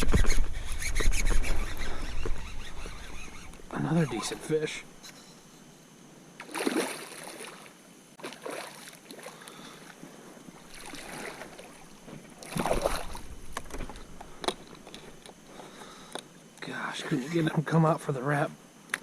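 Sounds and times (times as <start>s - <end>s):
water splashing against kayak: 10.6s - 14.0s.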